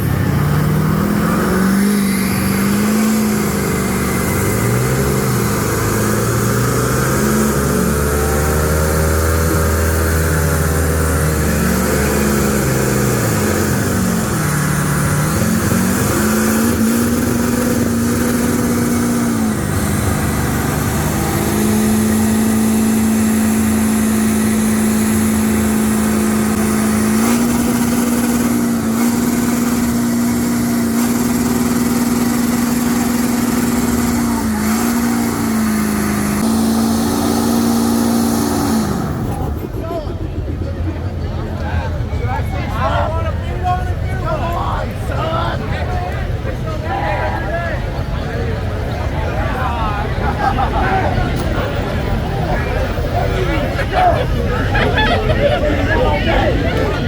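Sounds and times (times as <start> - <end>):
engine revving: 0.0 - 43.2, 47.9 - 57.0.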